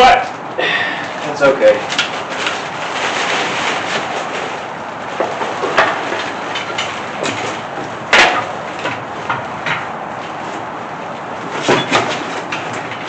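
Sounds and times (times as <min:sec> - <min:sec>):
metallic knocks and clunks: 0:05.2 - 0:09.9.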